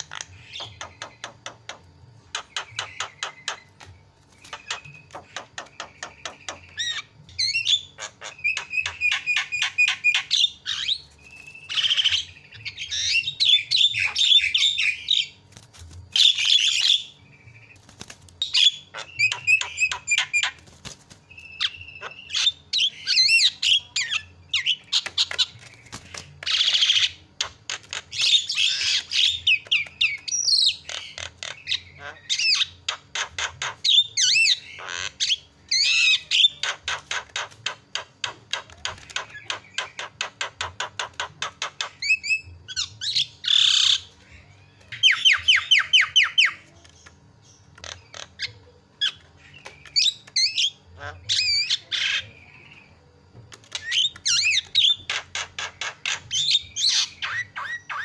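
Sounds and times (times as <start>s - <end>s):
bird squawks: 4.4s - 15.4s, 18.4s - 20.7s, 21.4s - 46.8s, 47.8s - 52.9s.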